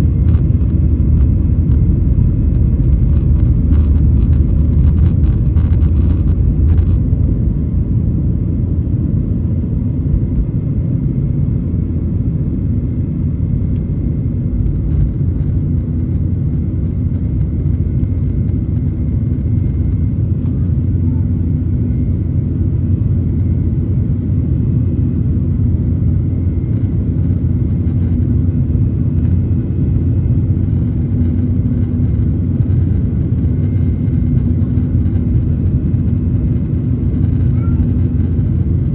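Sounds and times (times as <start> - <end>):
jet engine low rumble: 0.0 - 38.9
faint high engine tone: 26.0 - 38.9.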